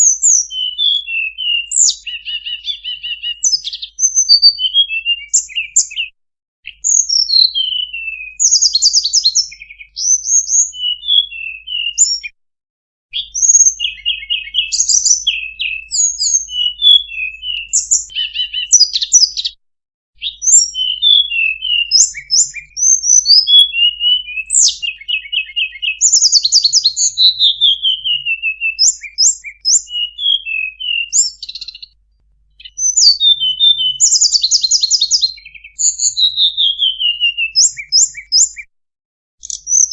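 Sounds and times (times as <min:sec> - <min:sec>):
bird singing high chirps and trills: 0:00.0 - 0:12.4, 0:13.1 - 0:19.6, 0:20.2 - 0:38.7, 0:39.4 - 0:39.9.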